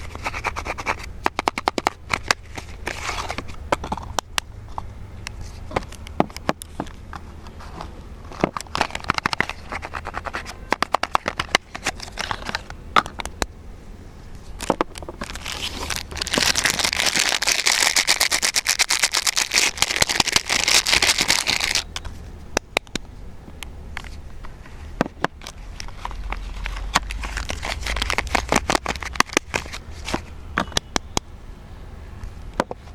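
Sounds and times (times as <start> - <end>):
handling taps and clicks: 1.2 - 13.6, 14.6 - 15.4, 21.2 - 31.3
wrapper crinkling: 8.5 - 12.7, 15.2 - 21.9, 25.4 - 30.3.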